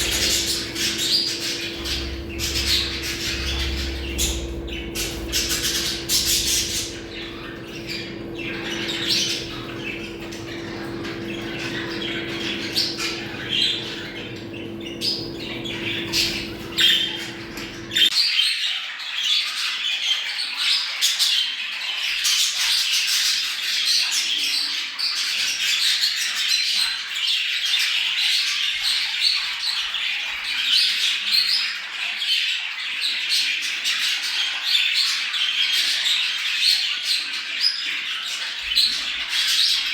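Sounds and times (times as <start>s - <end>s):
budgerigars chattering: 0.0s - 18.1s
steady low hum: 0.0s - 18.1s.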